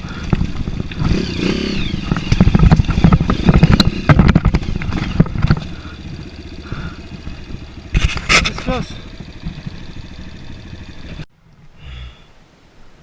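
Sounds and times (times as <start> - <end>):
off-road vehicle engine: 0.0 - 12.2
knocks and rattles from bumps: 2.0 - 5.8.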